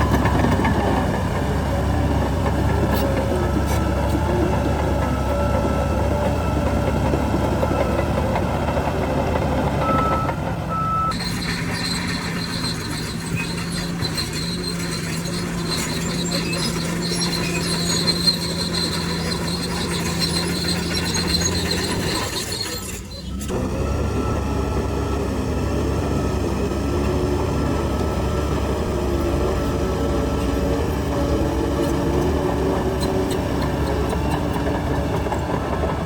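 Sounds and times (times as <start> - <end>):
diesel machinery engine rumble: 0.0 - 36.0.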